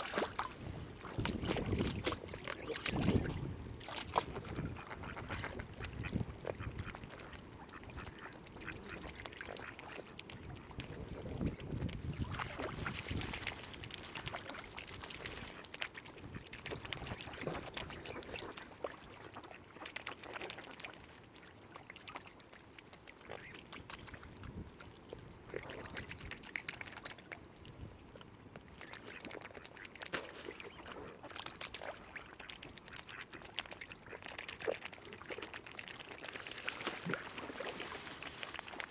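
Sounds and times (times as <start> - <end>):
ducks quacking: 4.3 - 10.0.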